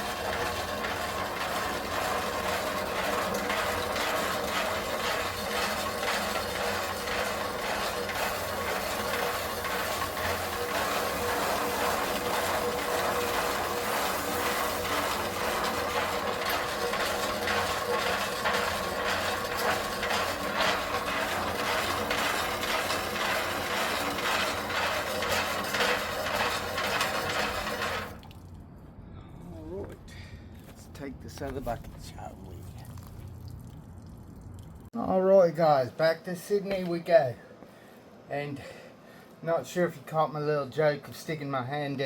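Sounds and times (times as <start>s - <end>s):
concrete tumbling in drum: 0.0s - 28.2s
concrete mixer motor humming: 0.0s - 28.3s.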